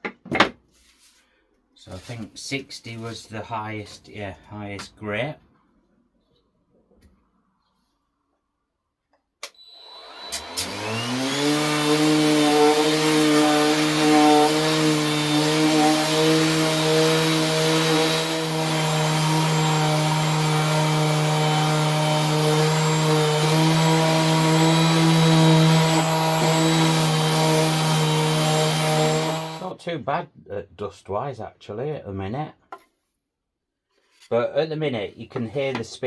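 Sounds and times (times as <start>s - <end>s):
orbital sander sanding wood: 9.9s - 29.8s.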